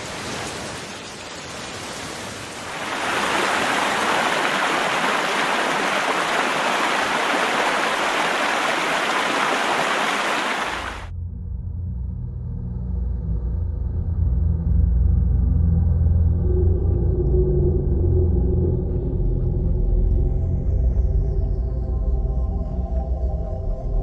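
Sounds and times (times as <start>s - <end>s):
rushing floodwater: 0.0s - 11.1s.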